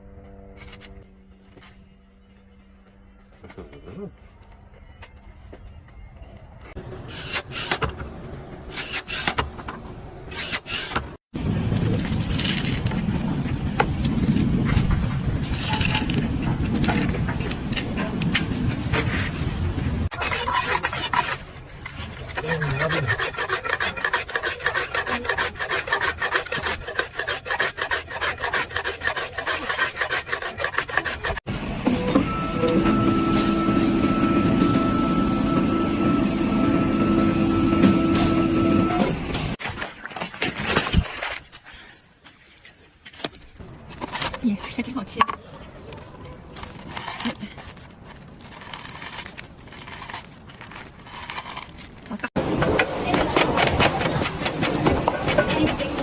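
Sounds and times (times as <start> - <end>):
scraping and rubbing: 10.3 - 31.5, 39.4 - 56.0.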